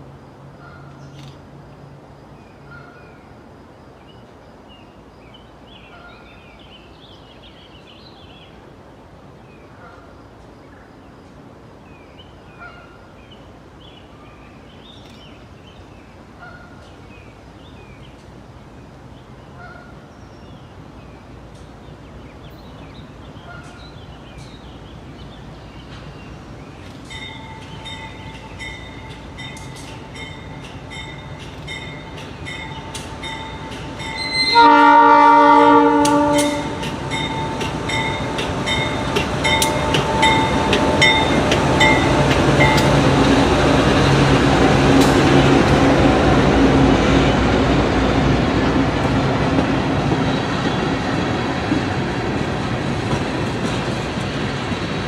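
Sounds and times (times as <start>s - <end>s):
low train rumble: 0.0s - 55.0s
bell-like ringing: 37.1s - 42.8s.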